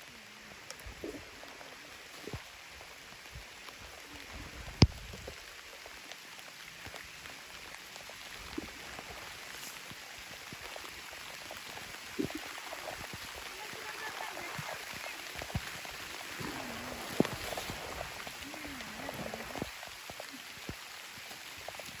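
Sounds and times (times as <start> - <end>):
water-like hiss: 0.0 - 22.0.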